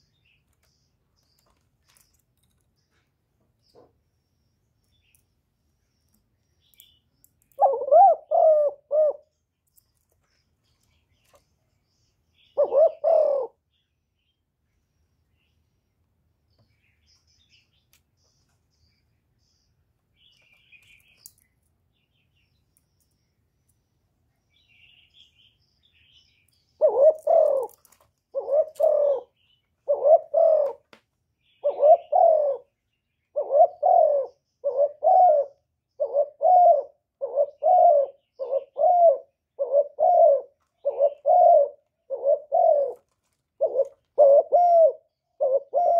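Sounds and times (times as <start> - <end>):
dove cooing: 7.5 - 9.4, 12.4 - 13.6, 26.8 - 30.9, 31.6 - 45.9.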